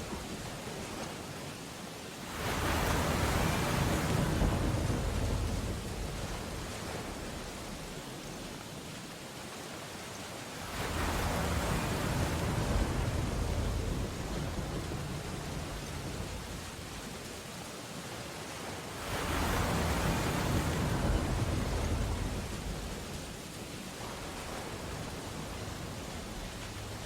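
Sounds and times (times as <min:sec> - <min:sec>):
storm waves crashing: 0:00.0 - 0:09.5, 0:10.4 - 0:27.0.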